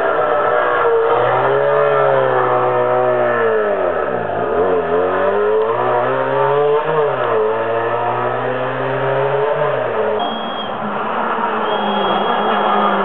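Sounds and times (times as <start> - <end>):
racing car engine revving: 0.0 - 13.0.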